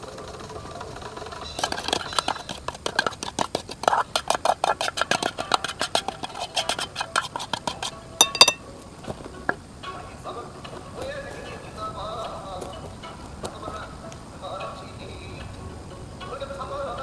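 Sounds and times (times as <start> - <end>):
utensils clicking and knocking: 0.1 - 8.6.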